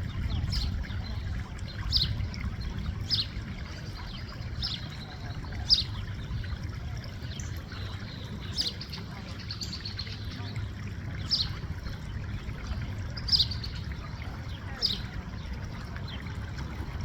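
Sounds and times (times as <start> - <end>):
steady low rumble: 0.0 - 8.5
bird chirping: 13.2 - 14.1.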